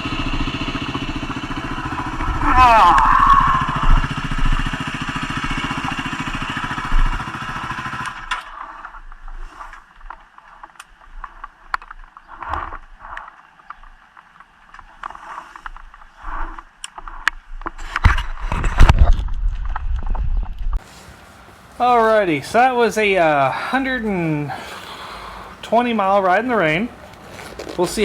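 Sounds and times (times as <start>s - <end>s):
motorcycle engine idling: 0.0s - 9.3s
rustles: 1.6s - 28.0s.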